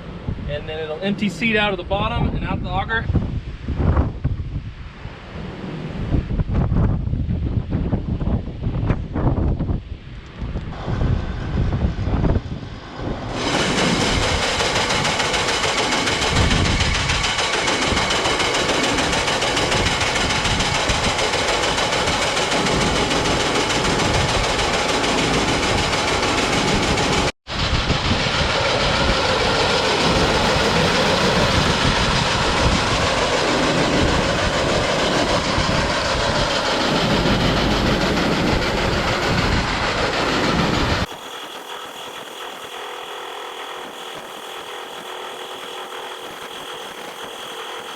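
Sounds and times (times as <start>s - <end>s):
tractor engine: 13.3s - 47.9s.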